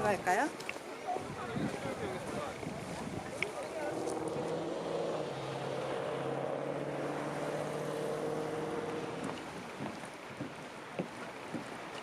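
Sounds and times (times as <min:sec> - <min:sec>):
car engine hum and road noise: 0:03.8 - 0:09.8.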